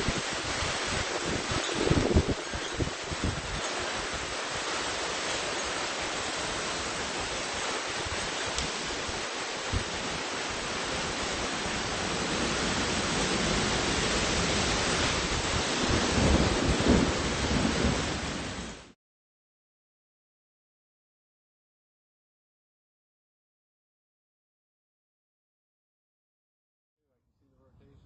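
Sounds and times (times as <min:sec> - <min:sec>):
wind gusts buffeting microphone: 0:00.0 - 0:18.8
storm wind rushing hiss: 0:00.0 - 0:18.9.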